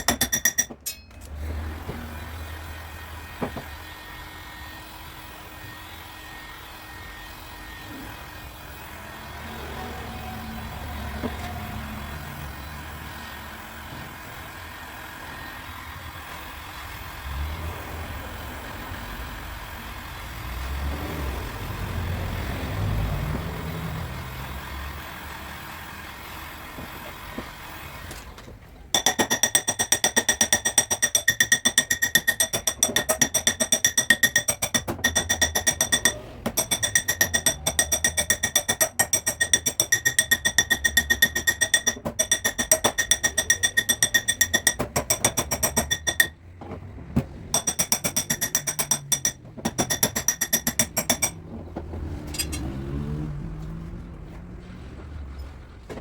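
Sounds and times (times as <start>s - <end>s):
hammer tapping on sheet metal: 0.0s - 1.2s, 28.9s - 46.4s, 47.5s - 51.5s.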